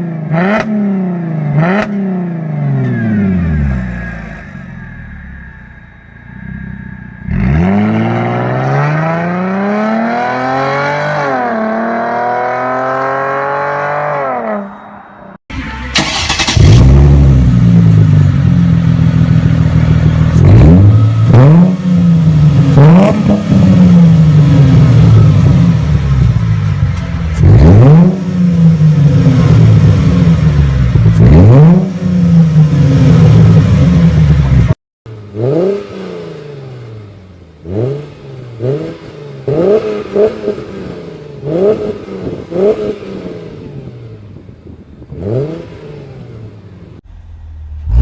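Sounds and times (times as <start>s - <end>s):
car engine revving: 0.3s - 44.2s, 45.0s - 48.0s
car engine starting: 15.5s - 48.0s.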